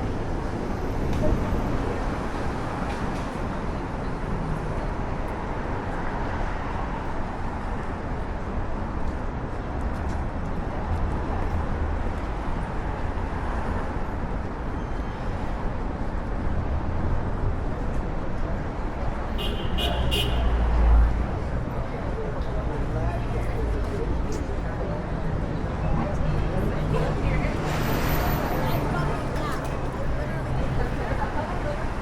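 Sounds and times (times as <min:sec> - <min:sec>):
rumble of passing vehicles: 0:00.0 - 0:32.0.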